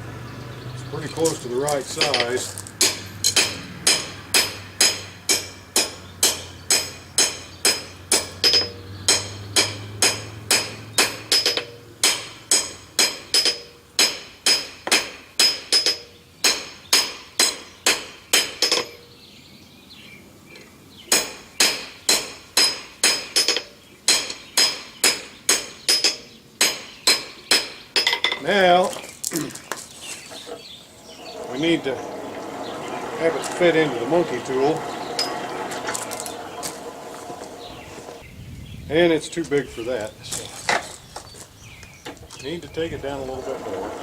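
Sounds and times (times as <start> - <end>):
hammer striking steel on anvil: 1.9 - 19.0, 21.1 - 28.4.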